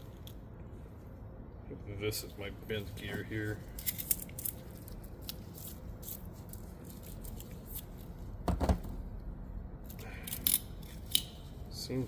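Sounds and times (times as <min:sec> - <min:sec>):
metal gear parts clicking: 0:03.7 - 0:07.9, 0:10.0 - 0:11.4.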